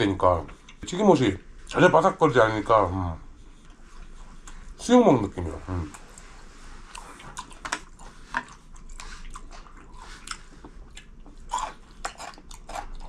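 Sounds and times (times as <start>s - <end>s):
crunching and chewing: 6.8s - 13.0s.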